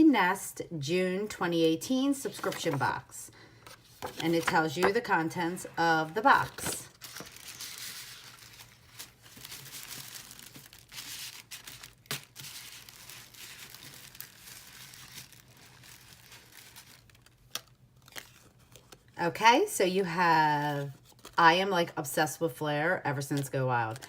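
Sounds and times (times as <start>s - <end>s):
tissue paper rustling and crinkling: 5.4s - 17.4s.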